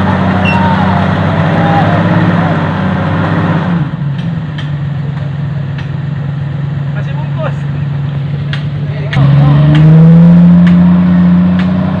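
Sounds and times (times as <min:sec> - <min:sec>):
off-road vehicle engine revving: 0:00.0 - 0:12.0
tyres churning through mud: 0:06.9 - 0:12.0.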